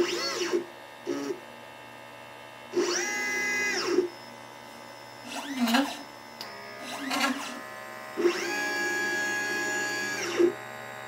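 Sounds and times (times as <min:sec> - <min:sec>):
stepper motors whining: 0:02.8 - 0:04.3, 0:05.0 - 0:11.0.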